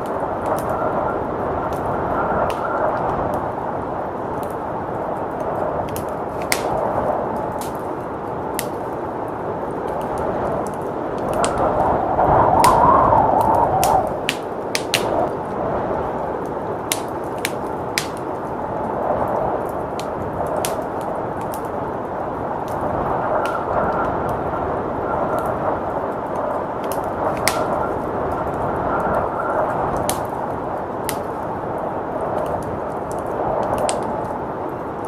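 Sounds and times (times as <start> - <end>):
blizzard wind rushing: 0.0 - 35.0
wood fire crackling and popping: 0.0 - 35.0.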